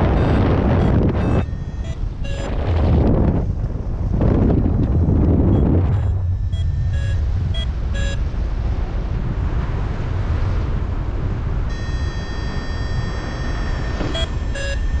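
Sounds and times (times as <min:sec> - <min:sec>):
variometer beeps: 0:00.0 - 0:03.0, 0:04.3 - 0:08.3, 0:11.7 - 0:15.0
variometer held tone: 0:00.0 - 0:08.3, 0:11.7 - 0:15.0
wind rushing over microphone: 0:00.0 - 0:15.0.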